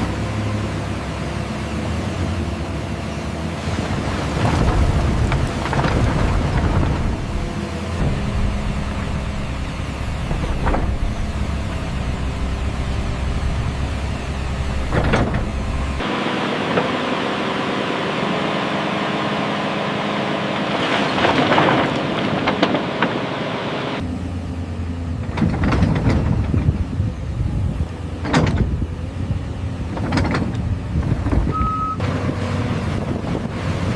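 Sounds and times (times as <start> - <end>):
excavator diesel engine running: 0.0 - 33.9
bucket clanking and scraping: 3.6 - 16.0, 20.7 - 23.2.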